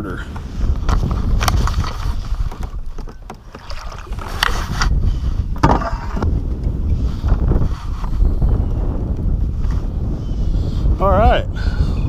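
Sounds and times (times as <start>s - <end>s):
wind rumbling on microphone: 0.0s - 12.0s
gear knocks and rustles: 0.4s - 8.2s.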